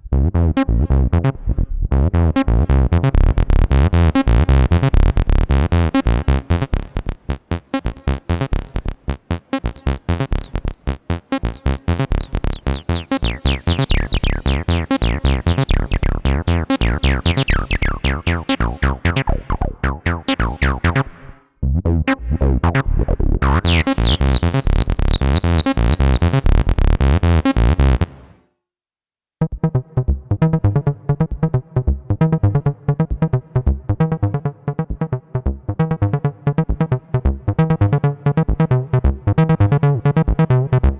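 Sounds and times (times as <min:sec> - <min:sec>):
acid bass synthesizer sequence: 0:00.0 - 0:28.4, 0:29.6 - 0:40.9.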